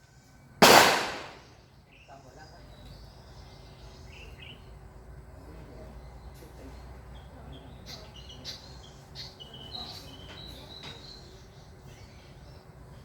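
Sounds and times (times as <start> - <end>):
small bird chirping: 7.1 - 13.0.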